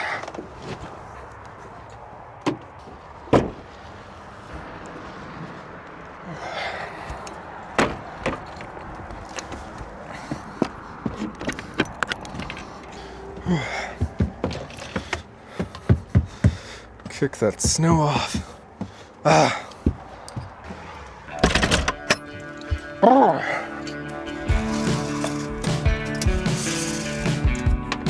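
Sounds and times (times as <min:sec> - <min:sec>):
steady background noise: 0:00.0 - 0:28.0
doors knocking and thumping: 0:03.3 - 0:03.6, 0:07.8 - 0:08.7, 0:14.0 - 0:19.0, 0:21.4 - 0:22.9
footsteps: 0:07.0 - 0:21.3, 0:22.4 - 0:23.0.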